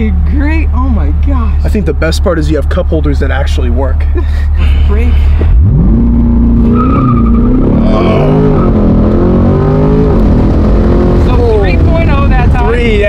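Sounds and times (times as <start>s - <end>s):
car engine accelerating hard: 4.9s - 13.0s.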